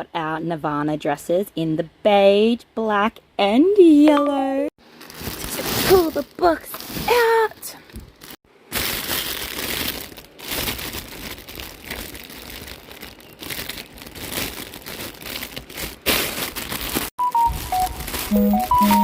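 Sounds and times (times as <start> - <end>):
paper and plastic crinkling: 4.8 - 19.0
short electronic tones: 17.2 - 19.0.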